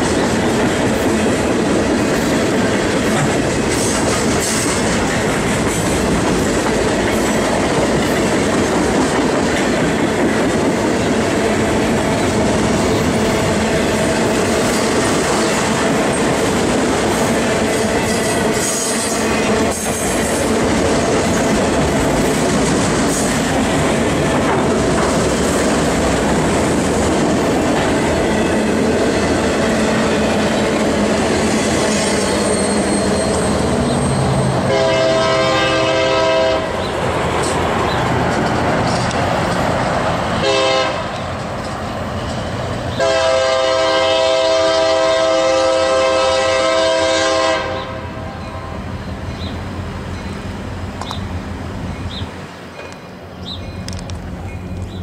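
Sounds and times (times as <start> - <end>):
locomotive air horn: 34.2 - 36.8, 40.4 - 41.2, 43.0 - 48.8.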